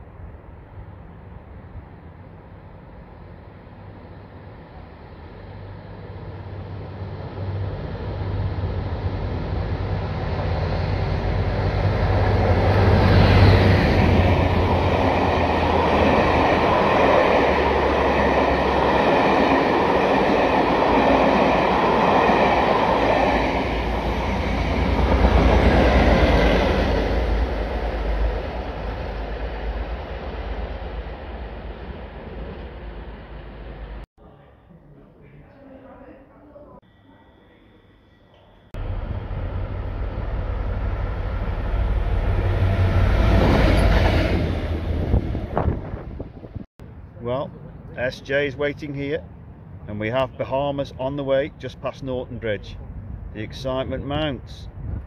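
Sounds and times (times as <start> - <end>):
train running past: 0.0 - 34.0, 38.4 - 55.0
low engine hum: 38.8 - 47.9.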